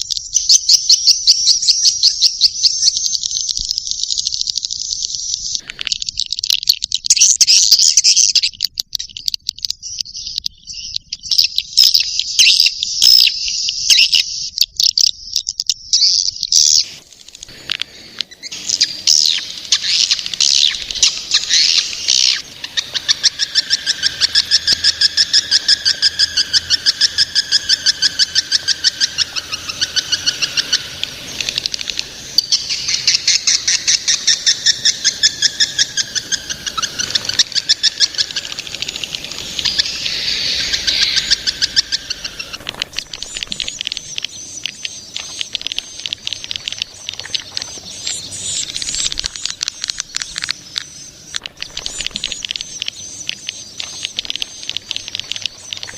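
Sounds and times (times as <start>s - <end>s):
swiftlets twittering: 16.8s - 55.9s.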